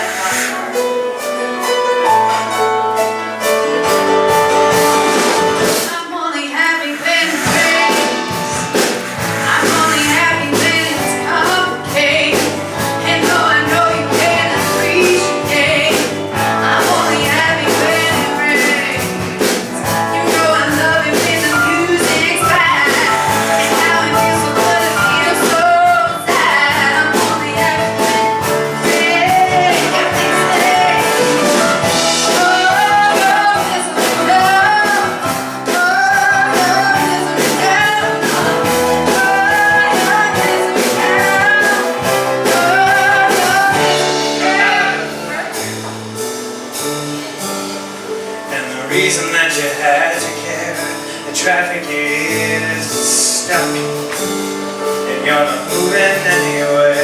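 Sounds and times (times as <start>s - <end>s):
person singing: 0.0s - 1.0s, 3.3s - 46.0s, 48.5s - 57.0s
live rock band playing: 0.0s - 6.0s, 6.7s - 57.0s
steady drum beat: 6.7s - 48.1s.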